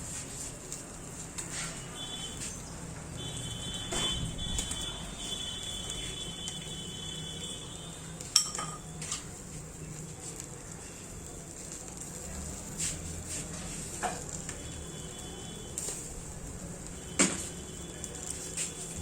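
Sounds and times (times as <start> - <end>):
utensils clinking against dishes: 8.3 - 9.3.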